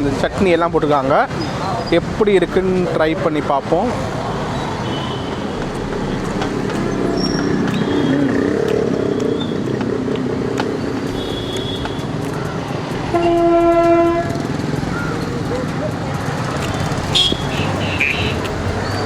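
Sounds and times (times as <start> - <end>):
street traffic noise: 0.0 - 19.0
vehicle horn blaring: 4.8 - 5.5, 11.1 - 12.1, 13.1 - 14.5, 17.0 - 18.4.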